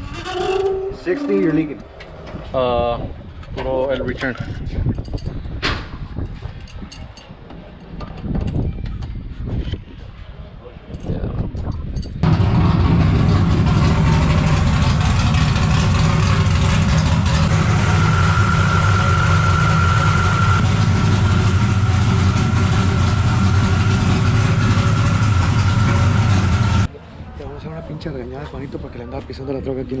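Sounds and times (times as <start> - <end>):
truck engine running: 12.2 - 26.9
thin high whine: 13.3 - 26.9.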